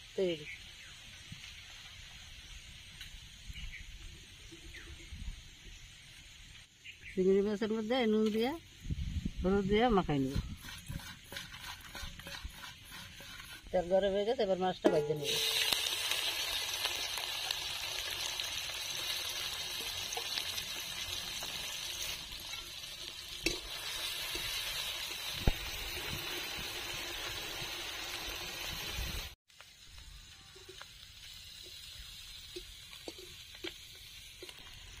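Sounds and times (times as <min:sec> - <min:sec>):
prawns sizzling in hot oil: 0:09.5 - 0:35.0
metal spatula knocking on pan: 0:14.9 - 0:15.3.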